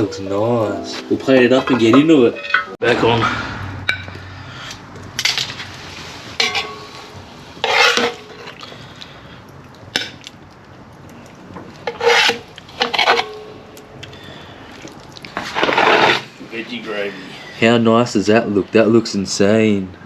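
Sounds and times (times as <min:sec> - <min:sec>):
utensil scraping pot and plates: 0:00.0 - 0:02.8, 0:06.2 - 0:08.6, 0:11.8 - 0:13.6, 0:15.4 - 0:16.4.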